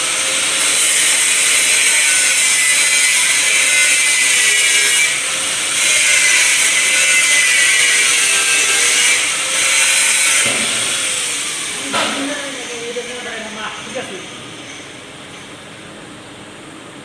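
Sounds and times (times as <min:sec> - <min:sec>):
power tool whining: 0:00.0 - 0:15.0.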